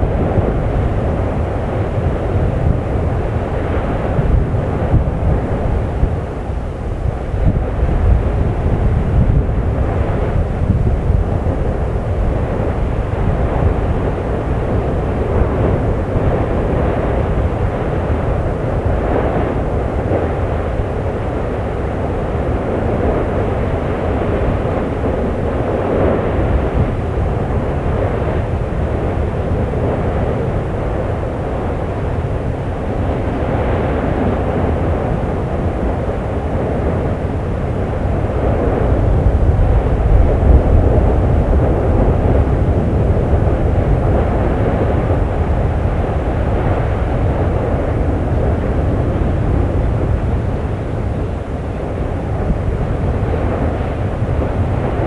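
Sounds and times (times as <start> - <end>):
deep volcano rumble: 0.0 - 55.0.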